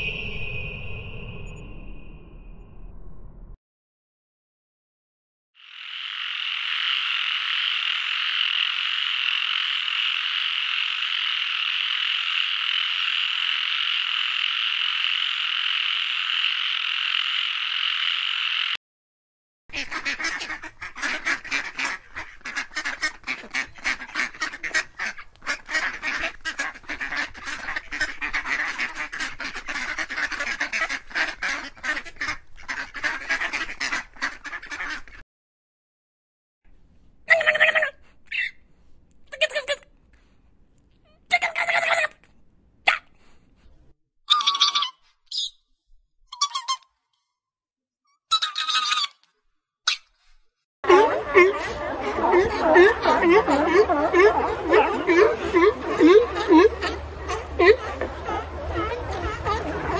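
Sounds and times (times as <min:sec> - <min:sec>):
chorus of frogs calling: 0:05.6 - 0:18.8, 0:50.8 - 0:59.9
ducks quacking: 0:19.7 - 0:35.2, 0:50.8 - 0:59.9.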